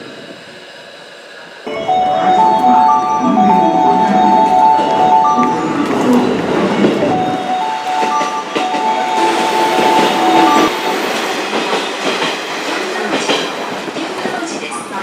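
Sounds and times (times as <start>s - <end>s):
steady tones at different pitches: 1.7s - 11.7s
electric train wheels clacking: 1.7s - 15.0s.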